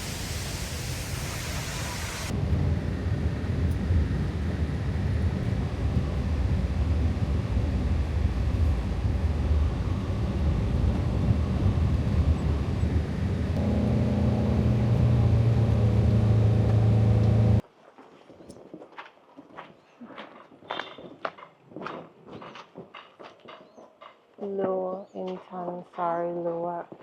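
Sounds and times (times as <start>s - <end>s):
rushing water hiss: 0.0s - 2.3s
low steady rumble: 2.2s - 17.6s.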